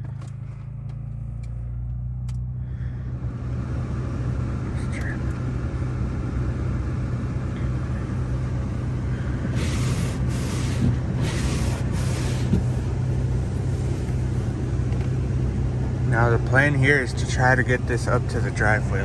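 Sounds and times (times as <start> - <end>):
car engine idling: 0.0 - 19.0
short hissing swishes: 9.5 - 13.0.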